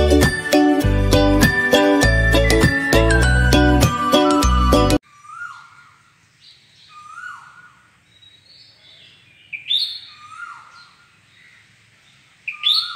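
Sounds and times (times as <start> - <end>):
bird calling with chirps: 5.0 - 12.9.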